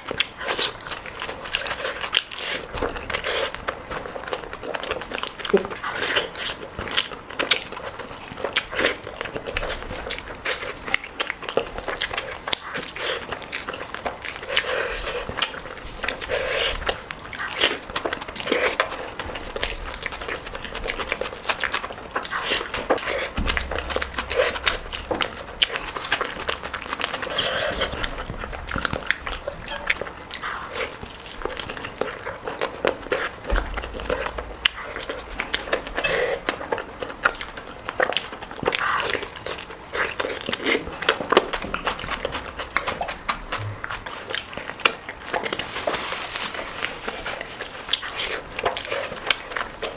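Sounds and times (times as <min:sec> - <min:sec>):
lip smacks and mouth clicks: 0:00.0 - 0:46.0
wet chewing: 0:00.0 - 0:49.9.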